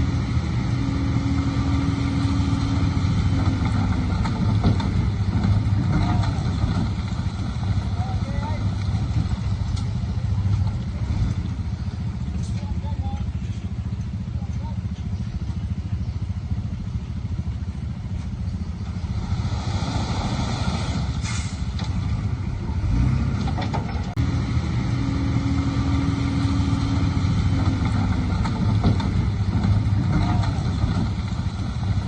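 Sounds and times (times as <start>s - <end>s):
heavy diesel engine running: 0.0s - 32.0s.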